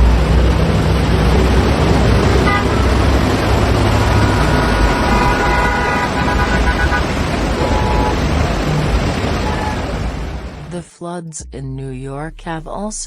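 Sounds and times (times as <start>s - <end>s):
traffic rushing noise: 0.0s - 10.7s
car horns honking: 2.4s - 10.3s.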